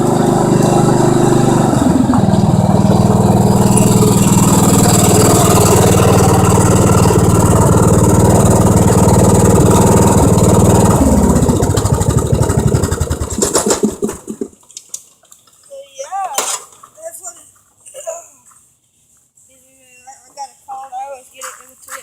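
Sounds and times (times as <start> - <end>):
lawn tractor engine running: 0.0 - 14.6.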